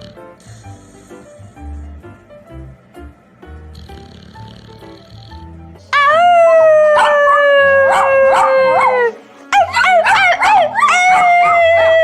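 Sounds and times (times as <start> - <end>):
dog howling: 5.9 - 12.0
dog yipping: 5.9 - 12.0.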